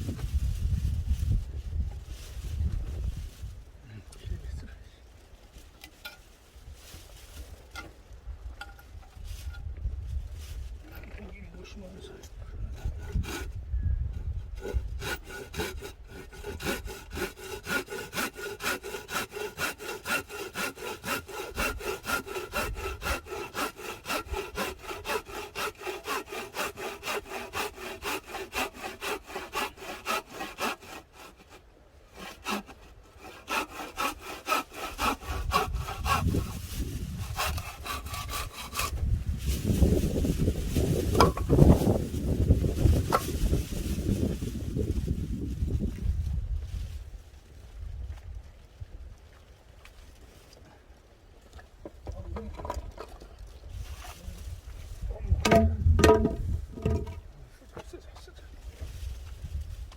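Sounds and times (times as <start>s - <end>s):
hand saw cutting wood: 12.7s - 13.6s, 14.2s - 43.3s, 55.4s - 57.2s.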